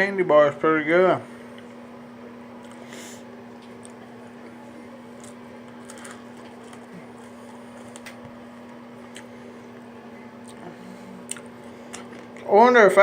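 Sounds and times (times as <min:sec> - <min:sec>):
steady low hum: 0:00.0 - 0:13.0
mouth clicks chewing: 0:11.2 - 0:11.5.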